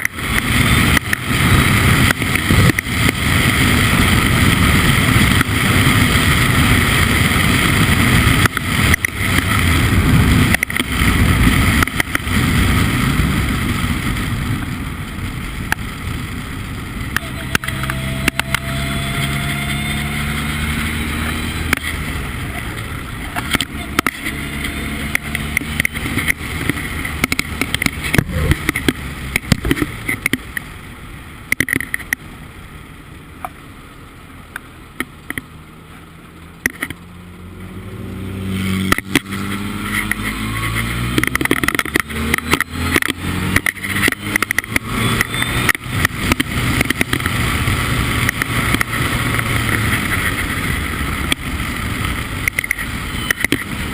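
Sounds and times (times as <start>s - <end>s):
race car engine revving: 16.2s - 30.4s, 35.3s - 53.9s.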